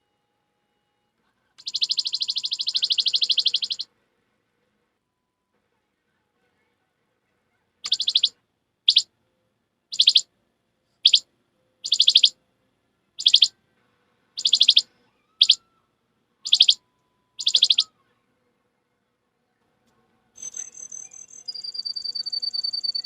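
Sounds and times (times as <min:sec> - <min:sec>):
bird-like chirping: 0:01.6 - 0:03.8, 0:07.9 - 0:08.3, 0:09.9 - 0:10.2, 0:11.0 - 0:11.2, 0:11.8 - 0:12.3, 0:13.2 - 0:13.5, 0:14.4 - 0:15.6, 0:16.5 - 0:16.8, 0:17.4 - 0:17.9, 0:20.4 - 0:23.0.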